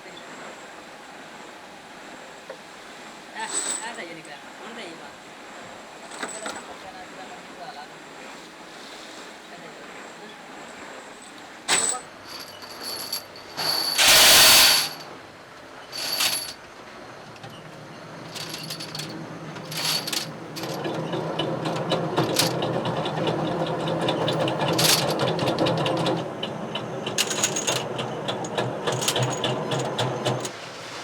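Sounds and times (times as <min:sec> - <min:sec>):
machine running steadily: 0:09.5 - 0:30.7
metal clinks: 0:11.7 - 0:15.0, 0:15.9 - 0:16.6, 0:18.3 - 0:20.8, 0:27.2 - 0:27.8, 0:28.9 - 0:30.5
loud burst of noise: 0:13.6 - 0:15.0.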